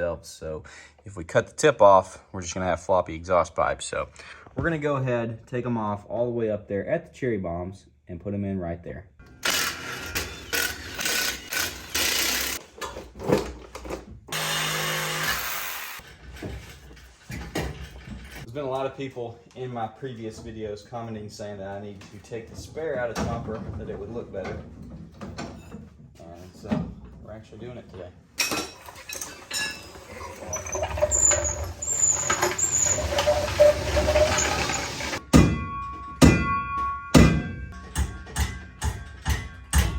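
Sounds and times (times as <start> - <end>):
handheld power tool bursts: 9.3 - 12.6, 14.3 - 16.0
tire hoist squeaking: 28.7 - 35.2
tire hoist clicking: 28.8 - 35.2.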